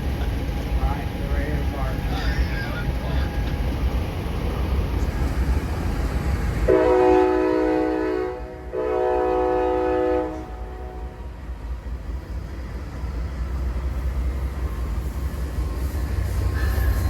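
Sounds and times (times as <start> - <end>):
idling locomotives rumble: 0.0 - 17.0
locomotive air horn blasts: 6.7 - 11.2.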